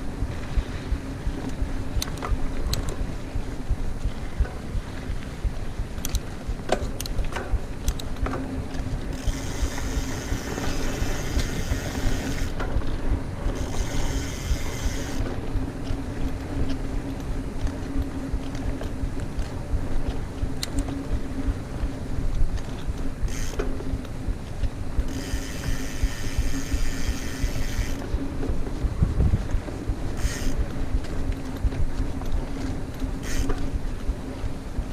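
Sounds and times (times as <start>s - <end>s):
wind buffeting microphone: 0.0s - 34.9s
bike chain and frame rattling: 6.0s - 34.9s
freewheel hub ticking: 9.1s - 12.6s, 13.5s - 15.2s, 25.0s - 28.1s, 30.2s - 30.7s.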